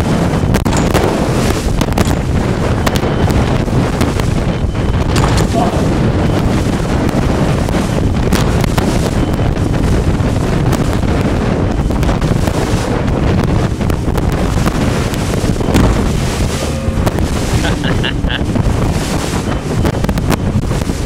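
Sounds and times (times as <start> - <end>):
wind buffeting microphone: 0.0 - 21.0
rushing water: 12.0 - 21.0.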